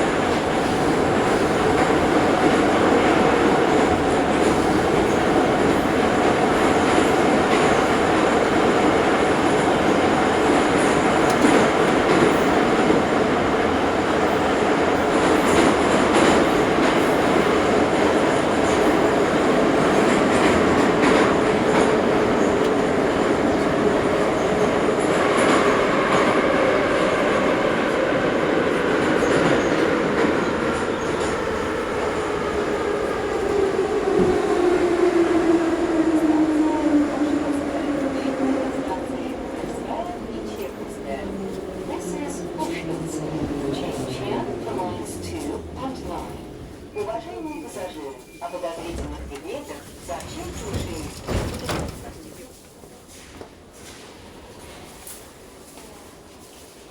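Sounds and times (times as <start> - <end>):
train rumble and wheel noise: 0.0 - 56.9
rail joint clacks: 42.6 - 52.5.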